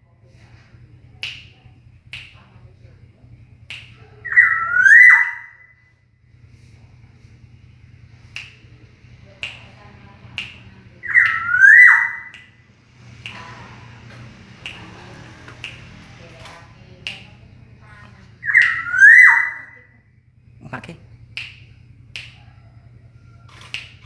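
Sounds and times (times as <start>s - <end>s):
bird whistled calls: 4.2s - 5.9s, 11.0s - 12.6s, 18.2s - 19.9s
sharp clicks: 12.3s - 19.0s.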